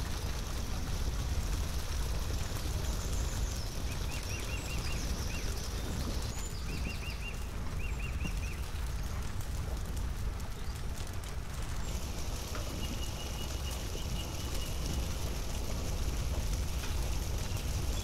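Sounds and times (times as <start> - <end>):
steady low outdoor rumble: 0.0 - 18.0
small songbird chirping: 2.6 - 8.6, 11.8 - 15.2.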